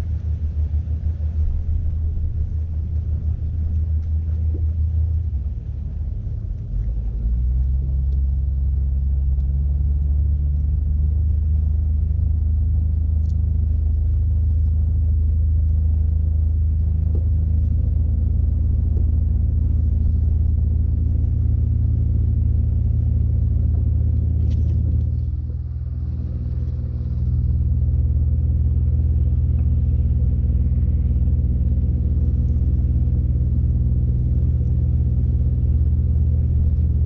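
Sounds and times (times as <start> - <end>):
boat engine droning: 0.0 - 37.0.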